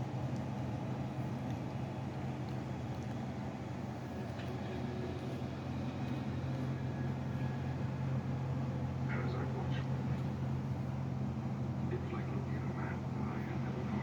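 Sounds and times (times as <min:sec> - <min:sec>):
steady low hum: 0:00.0 - 0:14.0
faint light ticks: 0:01.4 - 0:01.6.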